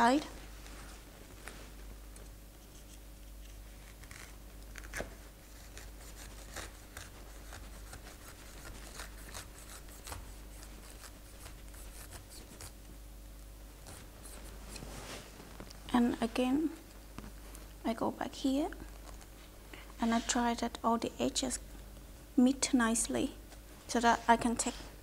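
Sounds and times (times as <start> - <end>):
low steady hum: 0.0 - 25.0
knife scraping pineapple: 3.8 - 12.8.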